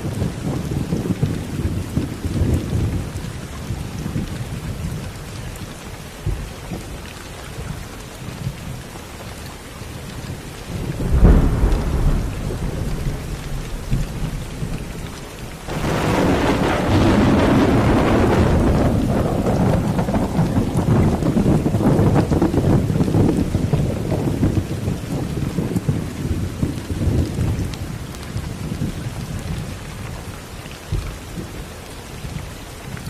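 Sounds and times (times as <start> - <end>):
steady rain: 0.0 - 33.0
low rolling thunder: 10.3 - 29.8
sharp thunderclap: 10.7 - 24.6.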